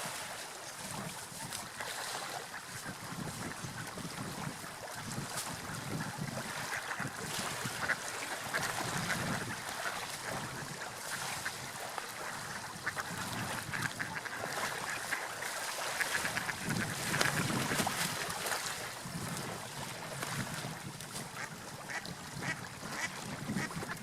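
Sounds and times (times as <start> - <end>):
sea waves washing: 0.0 - 24.0.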